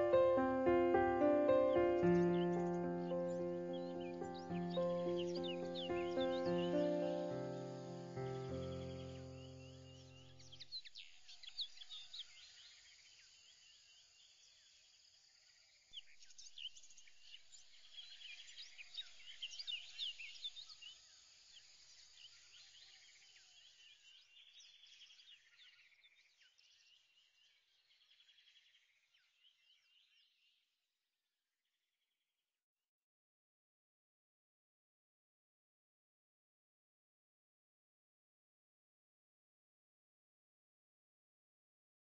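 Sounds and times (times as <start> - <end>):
faint birdsong: 0.0 - 30.7.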